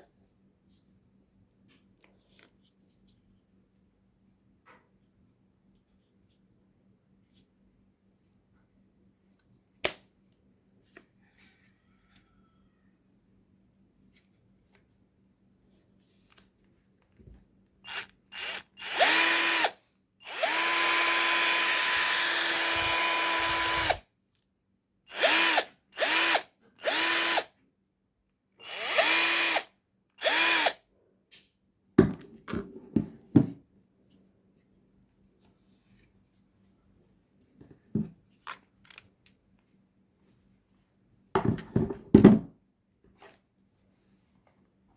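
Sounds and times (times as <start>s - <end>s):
cordless drill whining: 17.9s - 24.0s, 25.1s - 27.5s, 28.6s - 30.8s.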